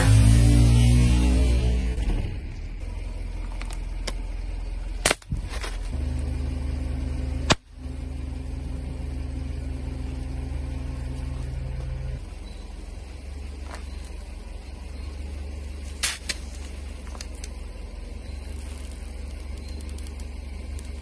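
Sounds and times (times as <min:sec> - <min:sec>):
car engine idling: 0:00.0 - 0:21.0
sharp cracks: 0:05.0 - 0:05.8, 0:15.9 - 0:17.6.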